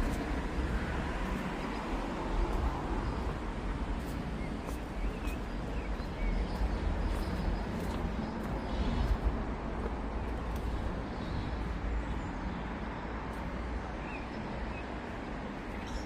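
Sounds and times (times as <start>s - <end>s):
footsteps ticking: 0.0s - 11.1s
road traffic rumble: 0.0s - 16.0s.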